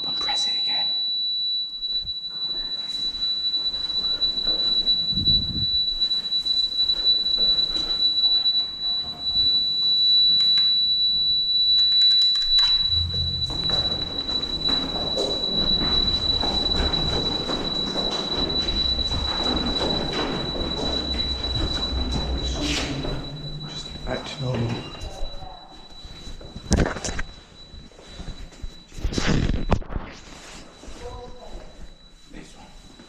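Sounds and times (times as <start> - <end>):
high-pitched electronic warning tone: 0.0 - 33.0
low rumbling noise: 12.6 - 25.1.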